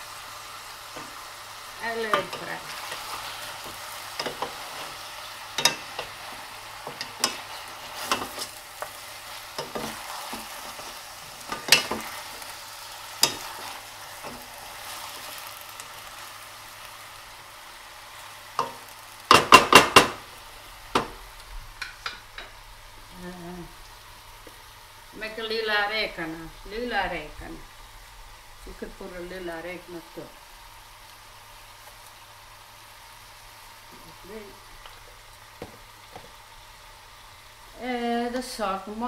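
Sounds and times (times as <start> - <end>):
chicken sizzling in a pan: 0.0 - 39.0
wooden spoons clacking on pan: 3.6 - 4.6, 5.5 - 6.2, 6.8 - 8.9, 11.5 - 12.1, 18.6 - 20.2, 21.8 - 22.5.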